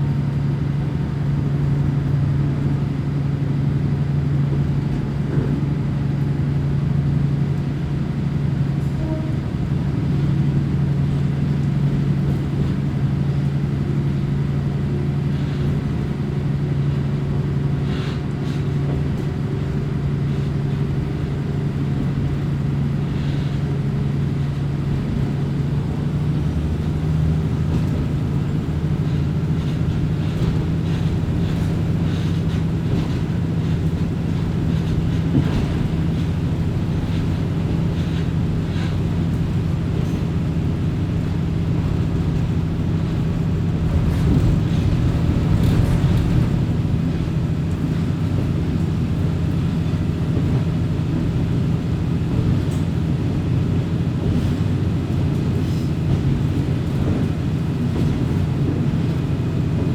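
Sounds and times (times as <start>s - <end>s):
diesel engine drone: 0.0s - 59.9s
wheels rumbling on rail: 0.0s - 59.9s.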